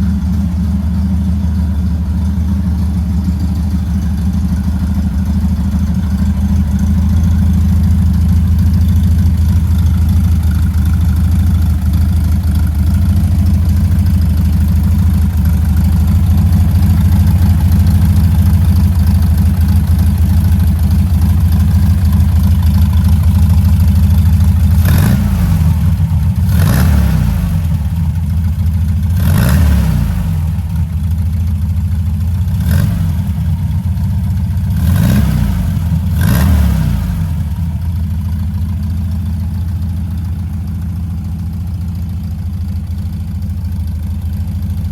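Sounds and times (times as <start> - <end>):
car engine idling: 0.0 - 44.9
engine revving: 24.6 - 28.2, 29.1 - 30.9, 32.5 - 33.4, 34.7 - 37.8.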